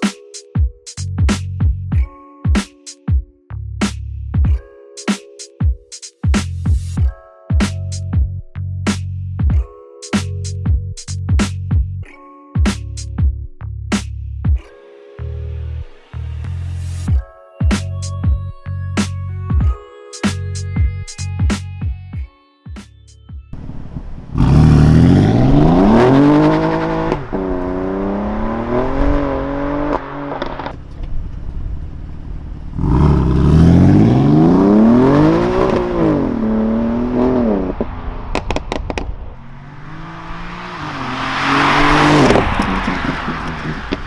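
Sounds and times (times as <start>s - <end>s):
car engine revving: 23.6s - 44.0s
exhaust cracks: 23.6s - 44.0s.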